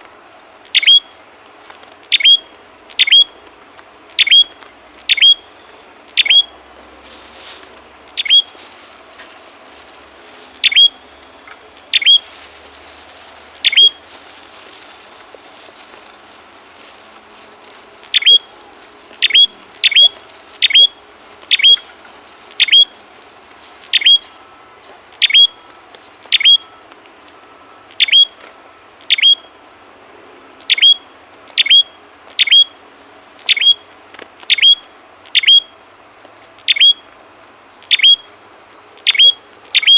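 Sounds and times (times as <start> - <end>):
bird chip notes: 10.6 - 12.3, 13.6 - 14.1, 18.0 - 21.9.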